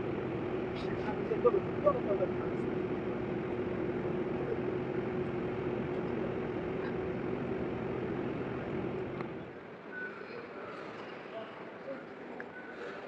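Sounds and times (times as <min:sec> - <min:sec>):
electric train rumbling: 0:00.0 - 0:09.8
train hum: 0:00.0 - 0:09.9.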